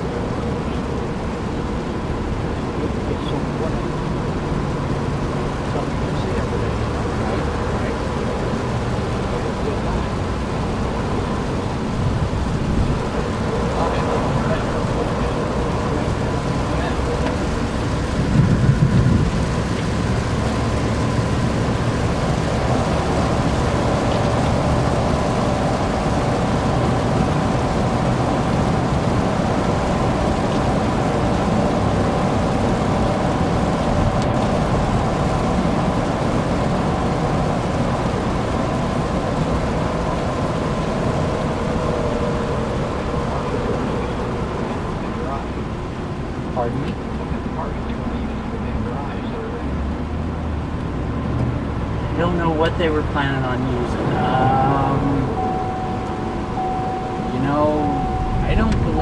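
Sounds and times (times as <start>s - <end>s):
engine and tyre rumble: 0.0s - 59.0s
hiss of rain and spray: 0.0s - 59.0s.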